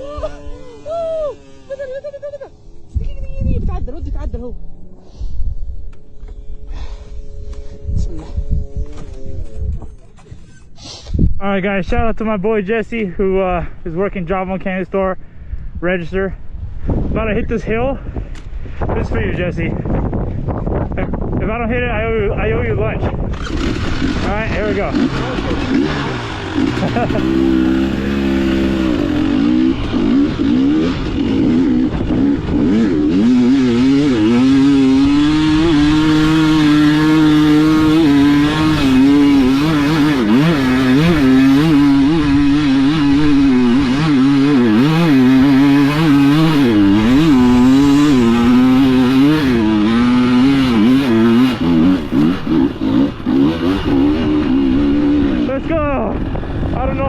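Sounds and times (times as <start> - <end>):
off-road vehicle engine revving: 23.0 - 57.0.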